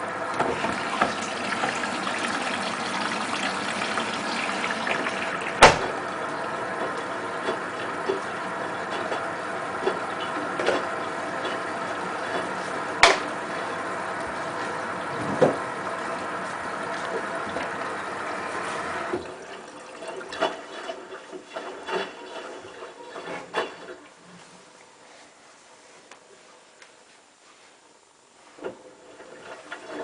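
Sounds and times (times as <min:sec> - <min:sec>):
water running through washing machine: 0:00.0 - 0:25.4, 0:28.4 - 0:30.0
washing machine hum: 0:00.0 - 0:30.0
washing machine drum knock: 0:00.4 - 0:06.2, 0:13.0 - 0:13.3, 0:15.1 - 0:15.7.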